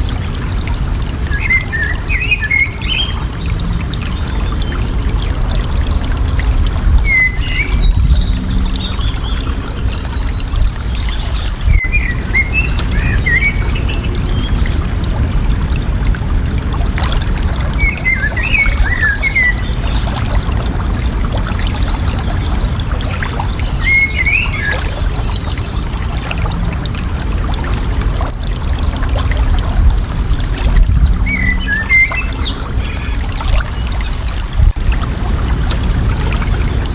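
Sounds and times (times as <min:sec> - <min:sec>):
water babbling: 0:00.0 - 0:36.9
songbird warbling: 0:23.7 - 0:25.4, 0:31.2 - 0:34.1.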